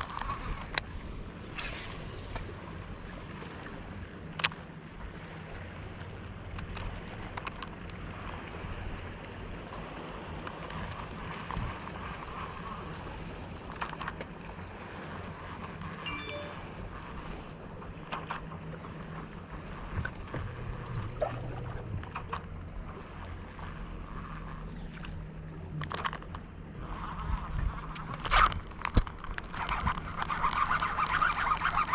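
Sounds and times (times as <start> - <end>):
boat motor humming: 0.0 - 31.9
wind noise on microphone: 26.8 - 31.9.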